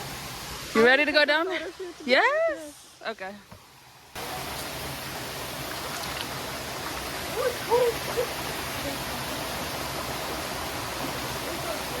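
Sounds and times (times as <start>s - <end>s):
waterfall rushing: 4.2s - 12.0s.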